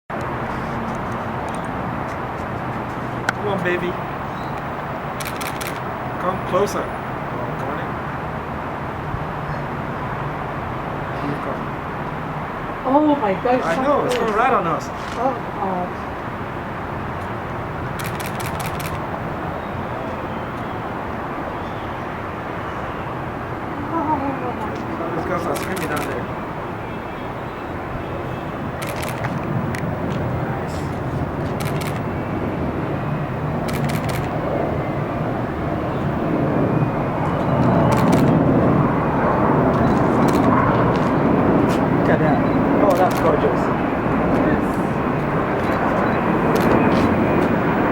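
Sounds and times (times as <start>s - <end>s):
jet engines passing overhead: 0.1s - 47.9s
short clicks: 5.2s - 5.8s, 28.8s - 29.9s, 31.6s - 32.0s, 33.7s - 34.4s
camera shutter clicks: 5.2s - 5.9s, 18.0s - 19.0s, 25.6s - 26.2s, 28.8s - 29.4s, 31.6s - 32.1s, 33.7s - 34.4s, 37.9s - 38.4s, 42.9s - 43.3s, 46.5s - 47.1s.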